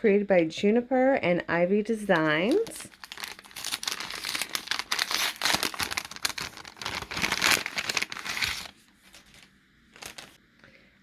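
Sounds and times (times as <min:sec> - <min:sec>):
packaging crinkling: 0:02.0 - 0:10.4.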